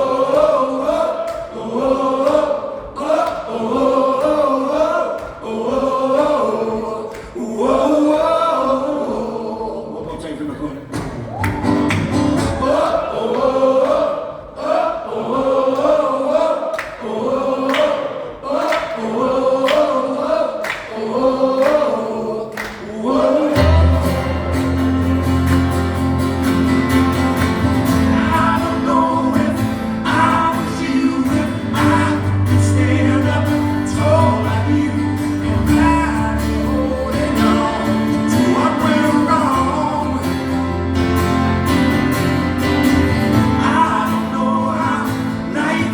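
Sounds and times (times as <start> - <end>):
strummed acoustic guitar: 23.5 - 45.9
held accompaniment with deep bass: 23.6 - 45.6
person singing: 28.0 - 40.7.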